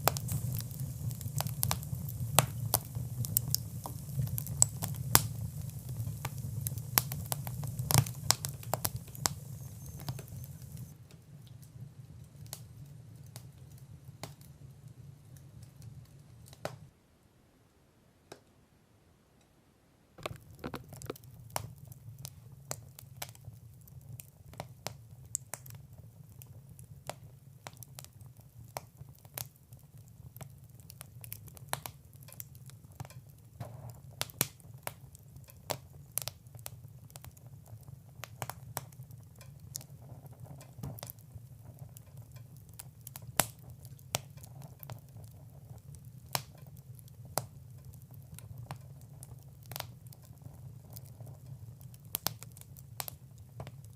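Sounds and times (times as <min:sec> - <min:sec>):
sharp fire pops: 0:00.0 - 0:11.0, 0:20.2 - 0:23.4, 0:30.4 - 0:37.4, 0:38.2 - 0:53.9
wood fire crackling: 0:00.0 - 0:16.9, 0:20.2 - 0:53.9.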